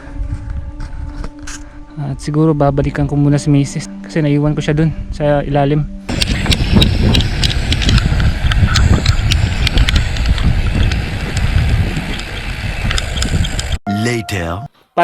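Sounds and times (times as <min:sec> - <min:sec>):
wind buffeting microphone: 0:00.0 - 0:01.9, 0:06.1 - 0:13.8
bike clicks and rattles: 0:06.1 - 0:13.8.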